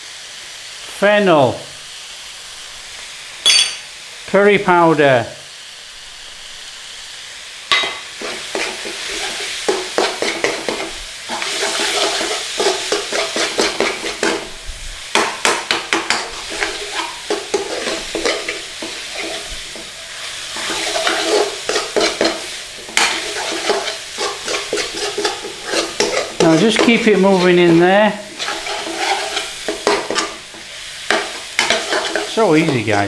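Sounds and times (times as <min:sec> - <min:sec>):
food sizzling in oil: 0:00.0 - 0:33.0
utensil scraping a pan: 0:08.2 - 0:32.9.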